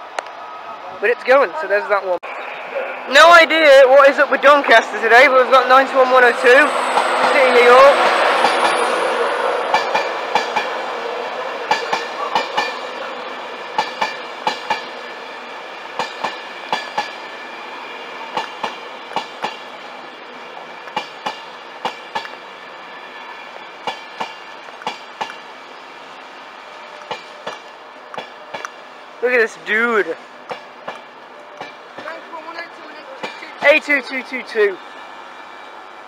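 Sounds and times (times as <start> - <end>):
train rumble: 2.4 - 36.0
train wheels clacking on rails: 4.4 - 17.5, 18.2 - 19.8, 20.8 - 22.5, 23.8 - 25.5, 26.8 - 28.9, 30.4 - 34.0
faint whine: 4.9 - 12.3.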